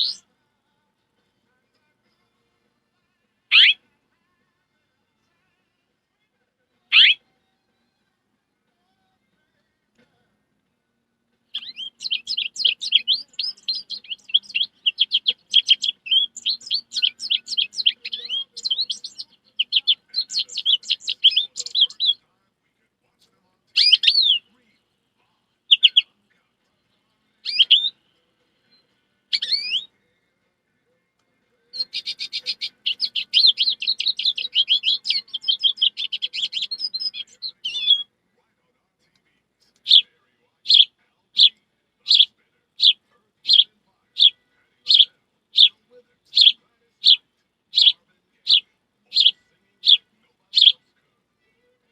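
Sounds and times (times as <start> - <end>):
high-pitched bird-like chirping: 0.0 - 0.2, 3.5 - 3.8, 6.9 - 7.2, 11.5 - 22.2, 23.8 - 24.5, 25.7 - 26.1, 27.4 - 28.0, 28.7 - 29.9, 31.8 - 38.1, 39.8 - 40.1, 40.7 - 41.5, 42.1 - 50.8.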